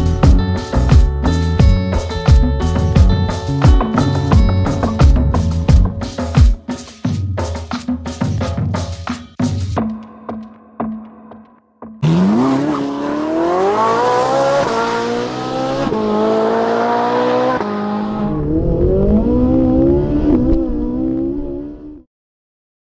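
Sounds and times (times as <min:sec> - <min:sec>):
car engine accelerating hard: 0:12.0 - 0:22.1.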